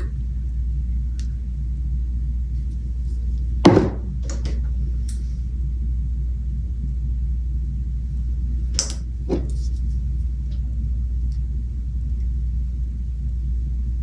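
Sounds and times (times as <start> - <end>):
low background hum: 0.0 - 14.0
sharp knock: 3.7 - 4.1.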